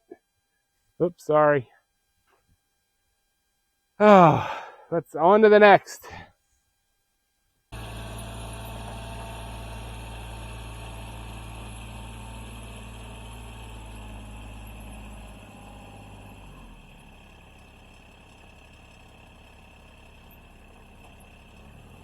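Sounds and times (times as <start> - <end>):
engine running with low hum: 7.7 - 22.0.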